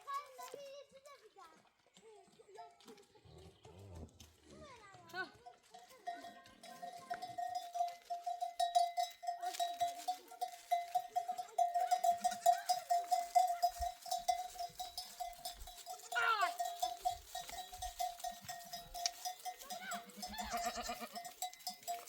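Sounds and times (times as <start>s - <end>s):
animal bell clanking: 5.2s - 22.0s
faint sheep bleats: 15.8s - 16.8s, 19.7s - 21.3s.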